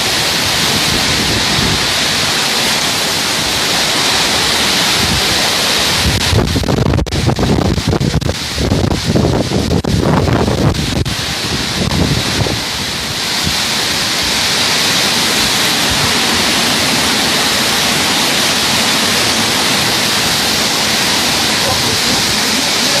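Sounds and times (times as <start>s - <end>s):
heavy rain pouring: 0.0s - 23.0s
wind buffeting microphone: 0.0s - 23.0s.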